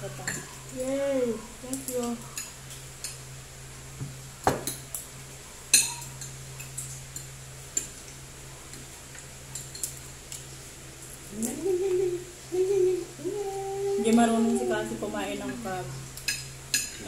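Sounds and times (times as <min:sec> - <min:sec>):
steady low hum: 0:00.0 - 0:17.0
cutlery and dishes clinking: 0:05.8 - 0:07.9.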